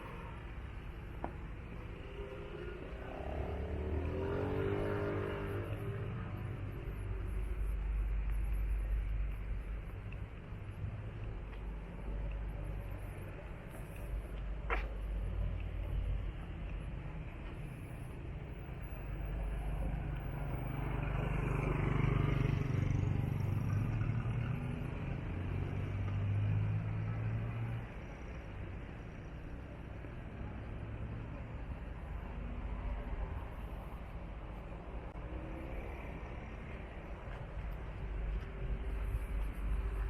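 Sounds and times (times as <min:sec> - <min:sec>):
vehicle engine rumbling: 0:00.0 - 0:40.0.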